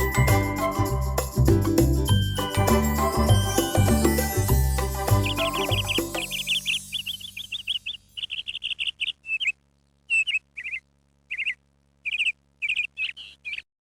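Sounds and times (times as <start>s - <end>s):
small bird chirping: 5.2s - 13.7s.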